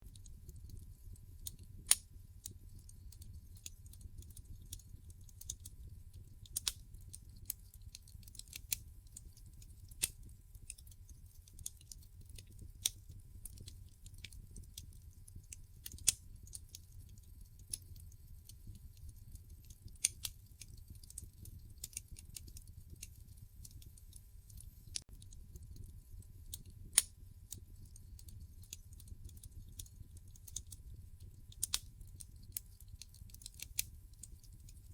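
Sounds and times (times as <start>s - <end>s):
wood fire crackling and popping: 0.0s - 34.9s
fire low rumble: 0.1s - 34.9s.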